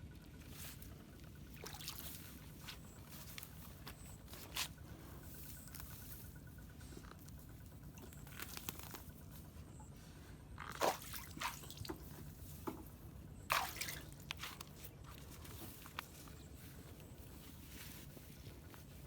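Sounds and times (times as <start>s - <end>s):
water splashing: 1.5s - 2.3s, 10.7s - 11.9s, 13.5s - 14.2s
wet crunching: 1.5s - 4.0s, 8.0s - 9.2s.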